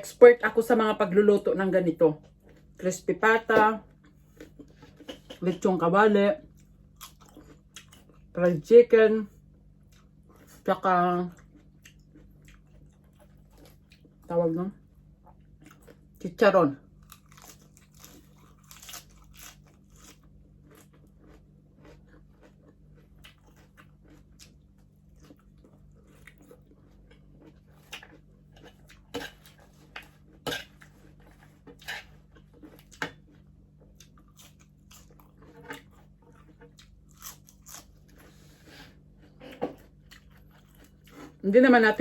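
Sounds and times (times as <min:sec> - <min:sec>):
crunchy chewing: 0:06.5 - 0:08.4, 0:11.3 - 0:14.3, 0:17.0 - 0:41.4.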